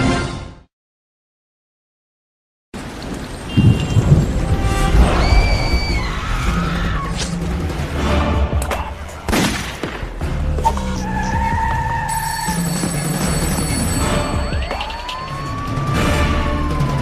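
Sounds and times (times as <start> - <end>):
wind rumble on microphone: 3.5 - 6.2.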